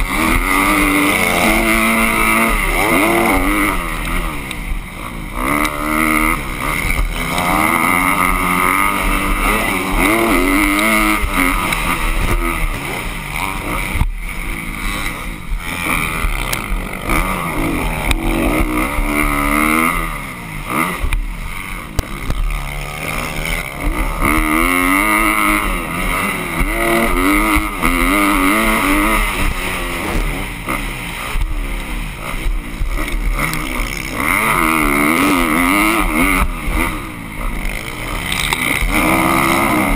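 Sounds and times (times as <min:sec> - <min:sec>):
dirt bike engine revving hard: 0:00.0 - 0:39.9.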